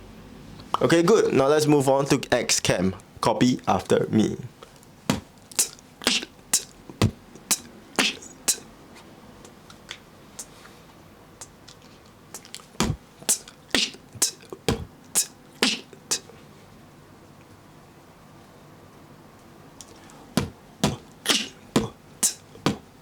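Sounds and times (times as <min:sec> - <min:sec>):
beatbox inward snares: 0:05.1 - 0:10.8, 0:11.4 - 0:16.4, 0:19.8 - 0:22.9
deeper beatbox hits: 0:12.8 - 0:15.9, 0:20.4 - 0:22.9.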